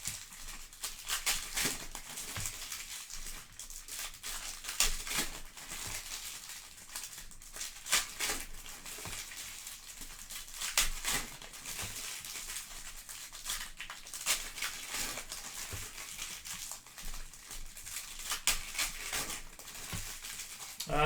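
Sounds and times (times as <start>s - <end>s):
foil wrappers crinkling and tearing: 0.0s - 20.8s.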